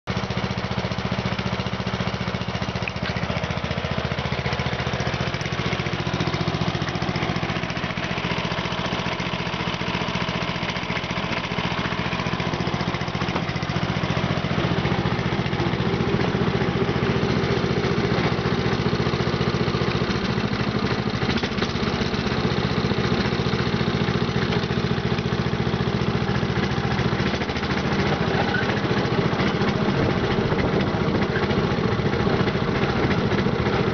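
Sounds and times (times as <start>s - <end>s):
ride-on lawn mower engine: 0.0s - 33.9s.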